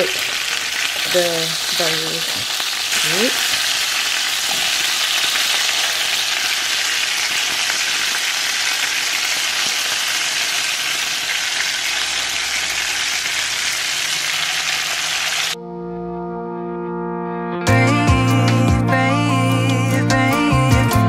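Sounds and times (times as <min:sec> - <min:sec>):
patties sizzling in grease: 0:00.0 - 0:15.6.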